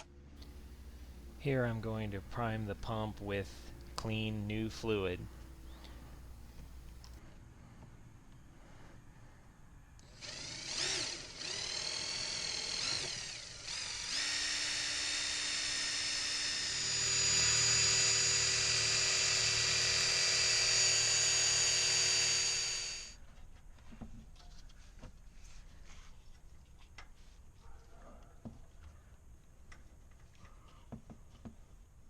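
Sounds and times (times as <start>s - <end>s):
pump motor whine: 0.4s - 7.2s, 14.1s - 23.1s.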